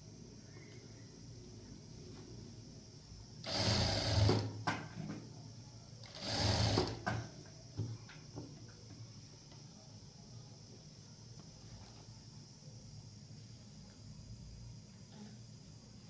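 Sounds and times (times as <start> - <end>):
sewing machine stitching: 3.4 - 4.6, 6.0 - 7.2.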